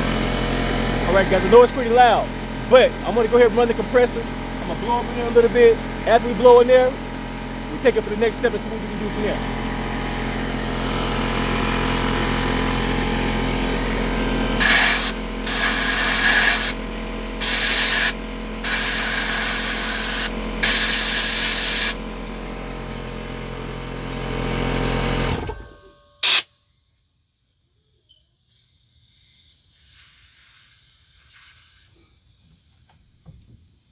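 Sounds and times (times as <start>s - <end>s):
air compressor humming: 0.0s - 26.4s
blow gun air bursts: 14.6s - 16.8s, 17.4s - 22.0s, 26.2s - 26.4s.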